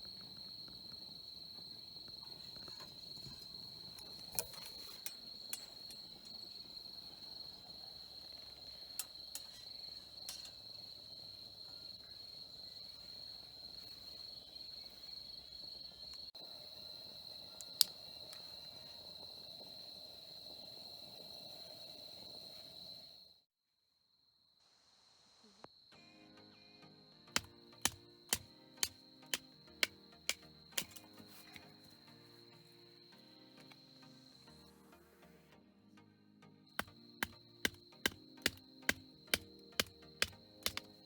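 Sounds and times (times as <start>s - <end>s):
crickets trilling: 0.0s - 23.4s, 25.6s - 35.4s, 36.6s - 41.0s
sharp clicks: 27.4s - 31.7s, 36.8s - 41.0s.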